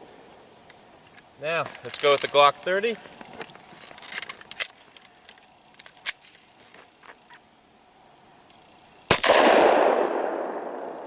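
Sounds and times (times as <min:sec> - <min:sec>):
pistol shot with echo: 0:09.1 - 0:11.0.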